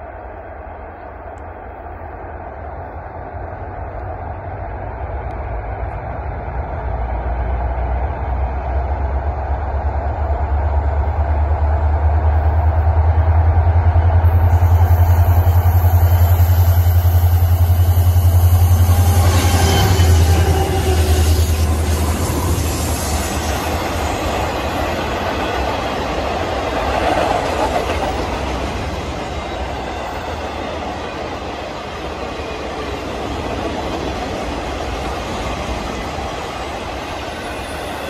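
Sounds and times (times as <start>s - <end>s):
diesel locomotive rumble: 0.0s - 38.0s
hissy wash: 14.3s - 38.0s.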